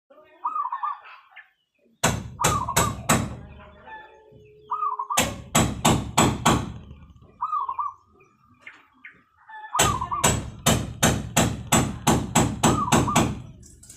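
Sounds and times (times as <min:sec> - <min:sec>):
dove trilling and cooing: 0:00.2 - 0:01.6, 0:02.3 - 0:05.8, 0:06.4 - 0:10.8, 0:12.6 - 0:13.6.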